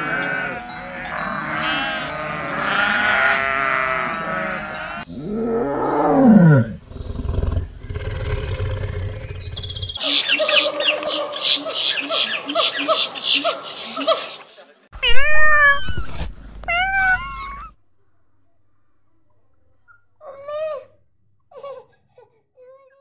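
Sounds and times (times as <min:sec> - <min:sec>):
goats bleating: 0:00.0 - 0:05.1
low rumbling growl: 0:05.1 - 0:10.0
tiger roaring: 0:05.1 - 0:10.0
high quick chirping calls: 0:08.2 - 0:14.4.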